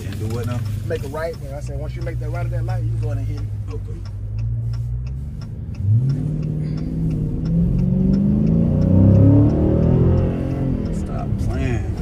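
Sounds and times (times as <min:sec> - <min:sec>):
car engine accelerating: 0:00.0 - 0:12.0
turn signal ticking: 0:00.0 - 0:12.0.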